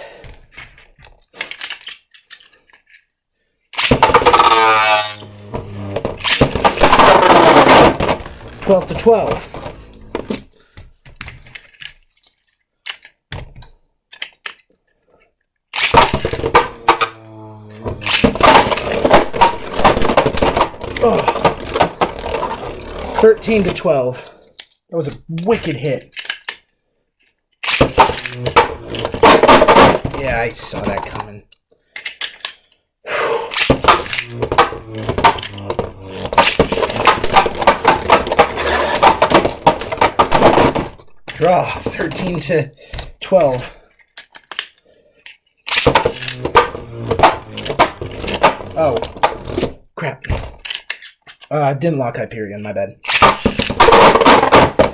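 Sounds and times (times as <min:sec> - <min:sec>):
small plastic clicks: 0:00.6 - 0:03.1, 0:03.8 - 0:15.0, 0:24.5 - 0:32.8, 0:50.3 - 0:51.5
spinning tops clattering and scraping: 0:03.8 - 0:10.4, 0:15.8 - 0:23.8, 0:27.6 - 0:31.2, 0:33.5 - 0:41.0, 0:45.7 - 0:49.7, 0:53.0 - 0:54.9
spinning tops clashing and rattling: 0:45.7 - 0:49.6.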